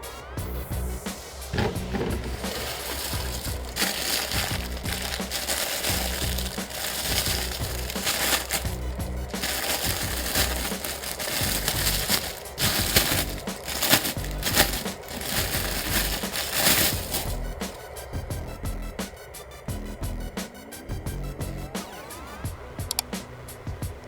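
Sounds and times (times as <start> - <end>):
background music: 0.0 - 24.0
crunching crinkling noise: 1.5 - 18.0.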